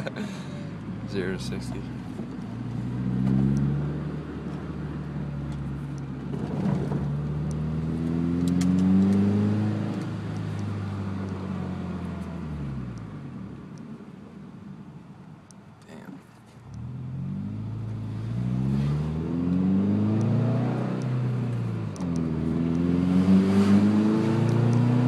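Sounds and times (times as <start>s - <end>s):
car engine accelerating hard: 2.5s - 13.0s, 16.7s - 25.0s.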